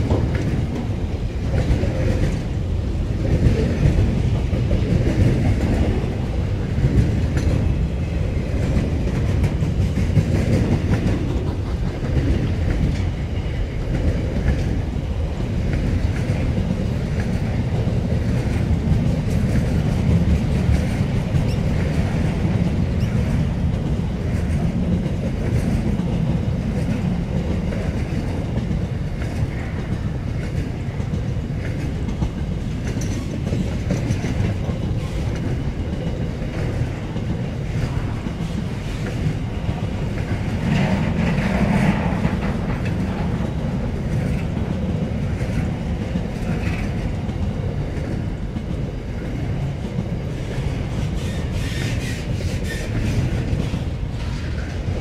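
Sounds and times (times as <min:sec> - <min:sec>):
clicking over rail joints: 0:00.0 - 0:02.6, 0:03.2 - 0:55.0
freight train rumbling past: 0:00.0 - 0:55.0.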